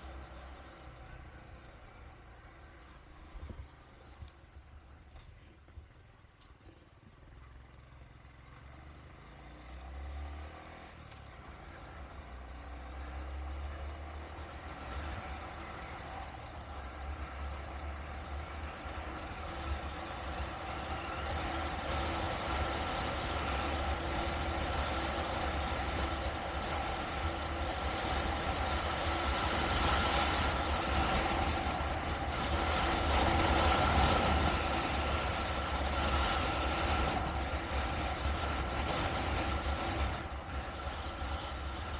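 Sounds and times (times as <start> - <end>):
road noise low rumble: 0.0 - 41.9
vehicle engine: 0.0 - 41.9.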